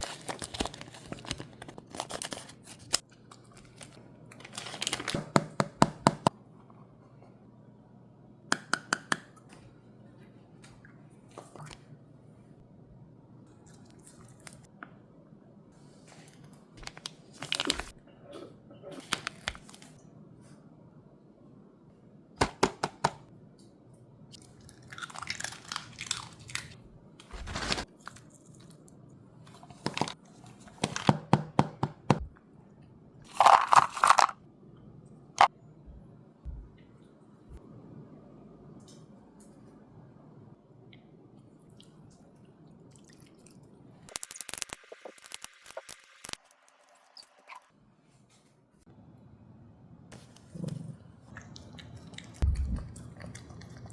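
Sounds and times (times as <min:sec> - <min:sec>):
dog chewing wet and crunchy: 0:51.2 - 0:53.9.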